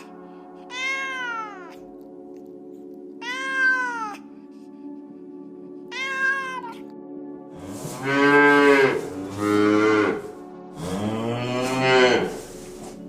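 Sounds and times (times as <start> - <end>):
cow mooing: 7.6 - 12.6.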